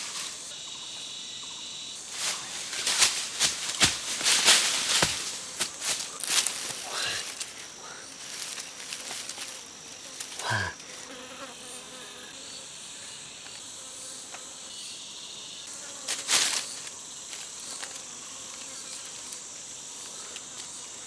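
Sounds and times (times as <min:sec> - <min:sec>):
insects droning: 0:00.0 - 0:21.0
noisy rustle: 0:02.0 - 0:07.6.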